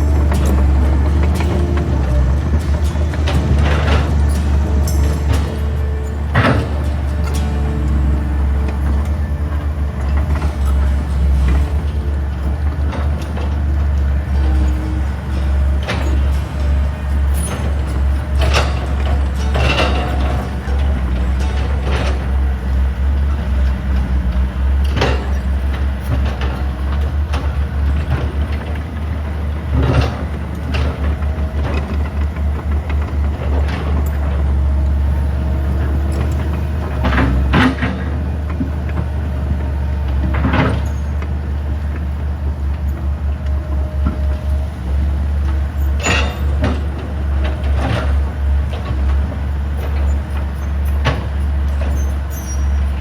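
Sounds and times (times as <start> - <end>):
sharp clanks and knocks: 0.0 - 24.1, 45.7 - 53.0
heavy diesel machinery rumble: 0.0 - 53.0.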